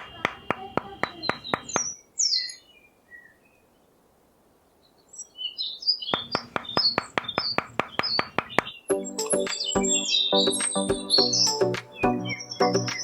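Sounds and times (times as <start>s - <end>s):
steady ticking: 0.0s - 1.9s, 6.2s - 11.9s
small birds chirping: 0.0s - 4.0s, 4.6s - 13.0s.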